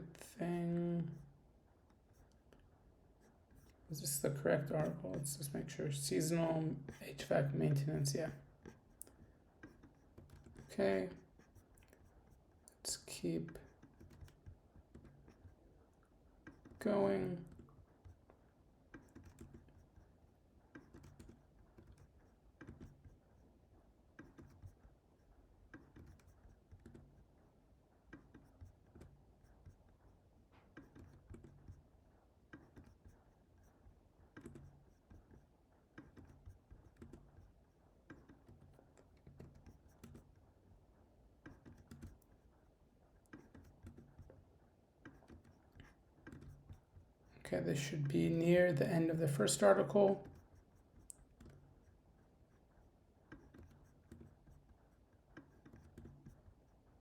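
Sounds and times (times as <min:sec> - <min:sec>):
computer keyboard typing: 0:36.0 - 0:37.5, 0:38.1 - 0:40.4, 0:41.4 - 0:42.4, 0:45.0 - 0:47.0.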